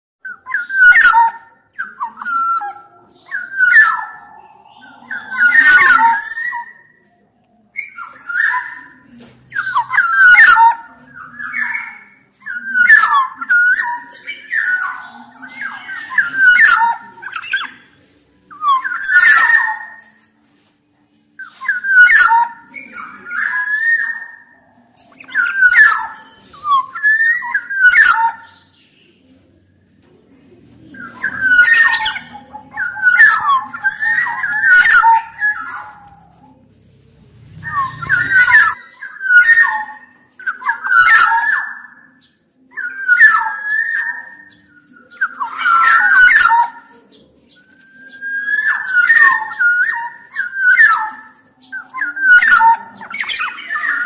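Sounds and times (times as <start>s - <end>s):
oriole whistling song: 0.2s - 54.0s.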